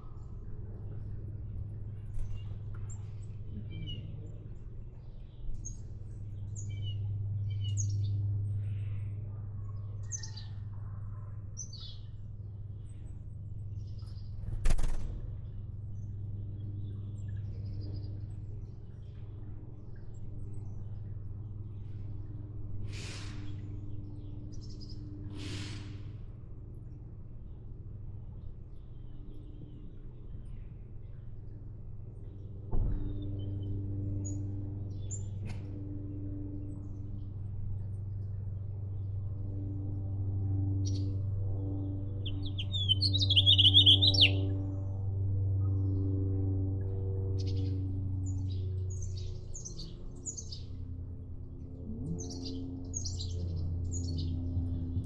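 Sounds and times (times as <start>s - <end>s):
steady low hum: 0.0s - 55.0s
short rushing sounds: 14.4s - 15.4s
small birds chirping: 42.1s - 44.5s, 48.3s - 50.8s, 52.2s - 55.0s.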